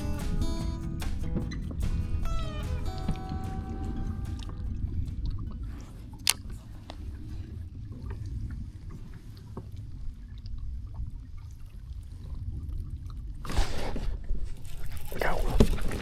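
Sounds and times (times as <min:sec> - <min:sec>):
water lapping against kayak hull: 0:03.9 - 0:16.0.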